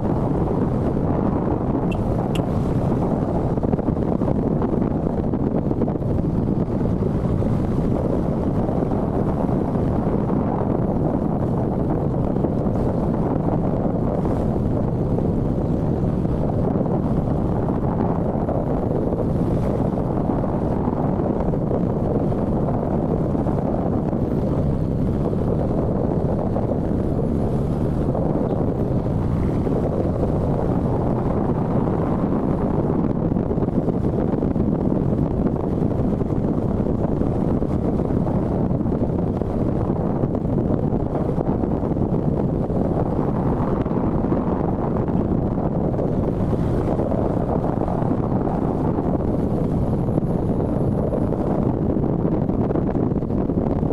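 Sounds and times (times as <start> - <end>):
wind rush on microphone: 0.0 - 53.9.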